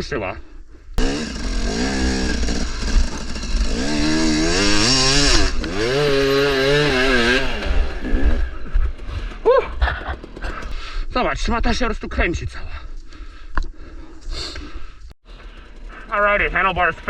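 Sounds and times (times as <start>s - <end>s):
dirt bike engine revving: 1.0s - 11.0s, 15.3s - 17.0s.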